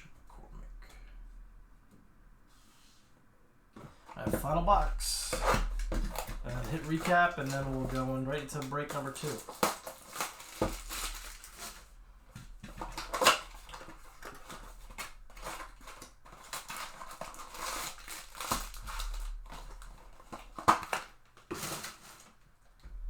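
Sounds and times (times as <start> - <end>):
foil wrappers crinkling: 4.0 - 22.6
cardboard ripping: 4.2 - 11.9, 12.7 - 22.4.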